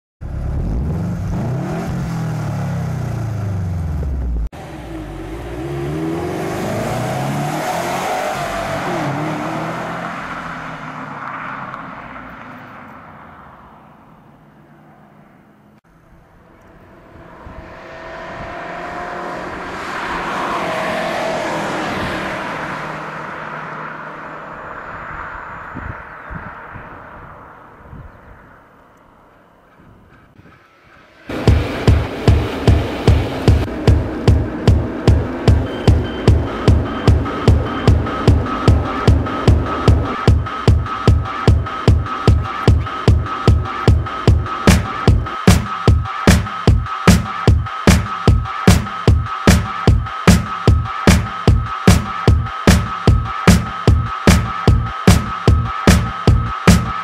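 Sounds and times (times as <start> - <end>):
car engine revving: 0.2 - 13.3, 15.8 - 27.8, 30.8 - 57.0
car driving past: 4.5 - 45.4.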